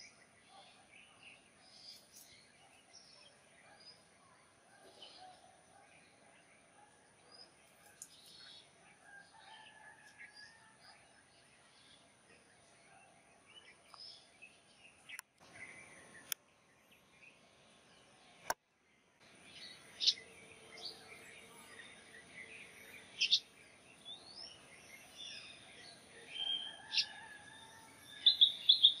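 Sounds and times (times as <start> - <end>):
wild birds chirping: 0.0 - 29.0
sharp bird calls: 19.7 - 29.0.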